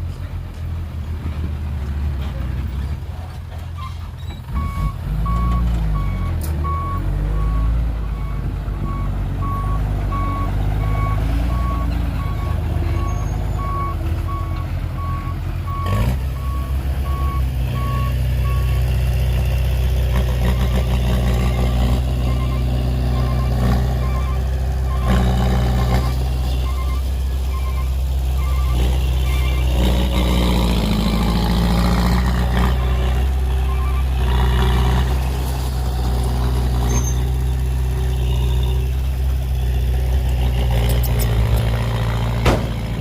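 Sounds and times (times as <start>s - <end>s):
diesel engine running: 0.0s - 43.0s
reversing alarm beeping: 4.6s - 18.8s, 21.4s - 29.8s, 32.7s - 34.2s
metal clank: 42.4s - 43.0s.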